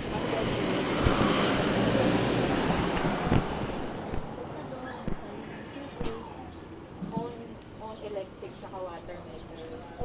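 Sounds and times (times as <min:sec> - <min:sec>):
steady rushing noise: 0:00.0 - 0:06.0.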